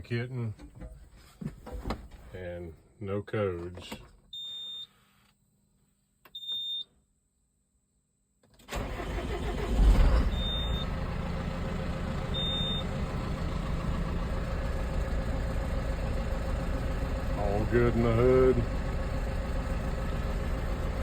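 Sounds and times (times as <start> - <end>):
diesel engine starting and idling: 8.6 - 21.0.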